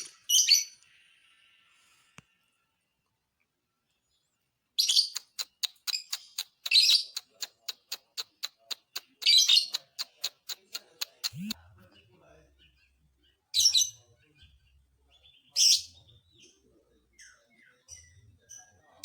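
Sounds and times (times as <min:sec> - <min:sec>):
lovebird chirping: 0:00.0 - 0:00.8, 0:04.8 - 0:19.0
lovebird ticking notes: 0:05.2 - 0:11.6.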